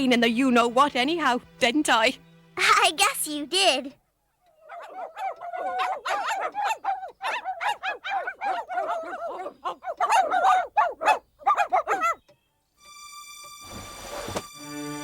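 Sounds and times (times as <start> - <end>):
cartoon puppies yipping and whining: 4.6 - 12.2.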